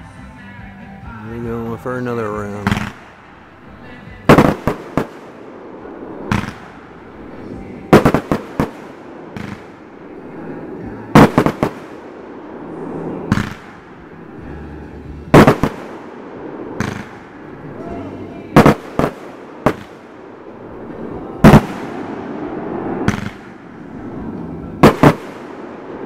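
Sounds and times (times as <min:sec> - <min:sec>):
firework bangs: 0:01.6 - 0:26.0
single firework pop: 0:23.0 - 0:23.5.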